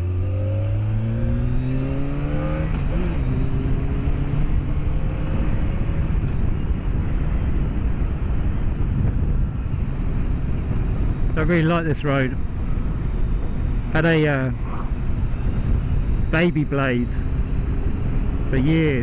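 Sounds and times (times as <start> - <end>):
motorcycle engine accelerating: 0.0 - 11.5
wind and road noise: 0.0 - 19.0.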